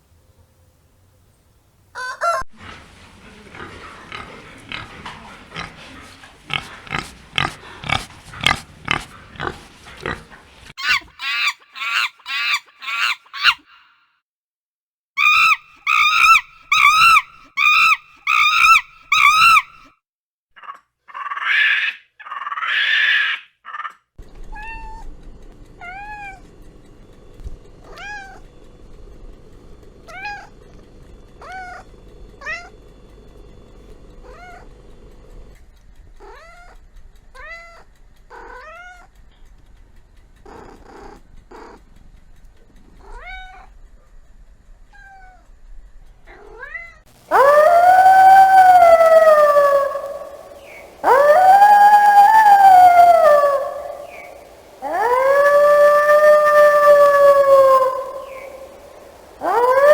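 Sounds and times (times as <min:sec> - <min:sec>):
dog howling: 0:15.2 - 0:19.9, 0:47.3 - 0:59.9.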